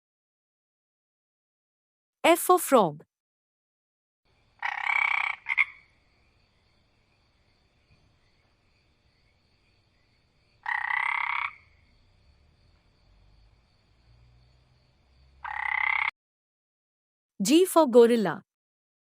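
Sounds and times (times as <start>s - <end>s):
frog croaking: 4.3s - 16.2s.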